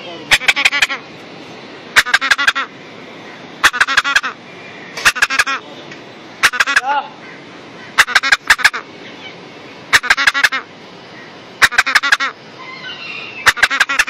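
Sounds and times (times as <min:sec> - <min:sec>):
parrot squawking: 0:00.3 - 0:01.1, 0:02.0 - 0:02.7, 0:03.6 - 0:04.4, 0:05.0 - 0:05.6, 0:06.4 - 0:14.0.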